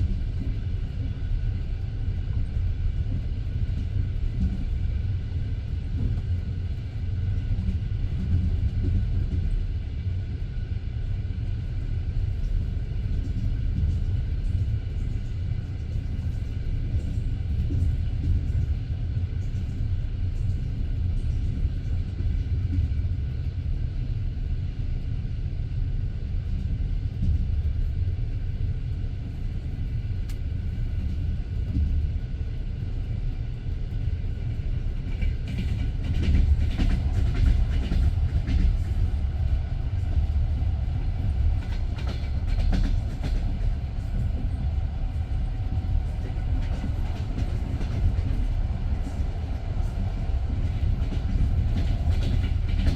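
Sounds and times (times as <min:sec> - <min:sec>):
train wheels rumbling on rails: 0:00.0 - 0:52.9
train wheels clattering: 0:35.0 - 0:39.4, 0:41.2 - 0:44.6, 0:46.1 - 0:52.9.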